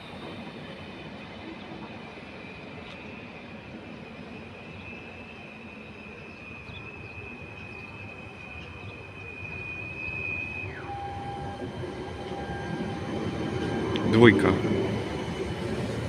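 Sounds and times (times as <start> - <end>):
train rumble: 0.0 - 16.0
train wheel squeal: 0.0 - 16.0.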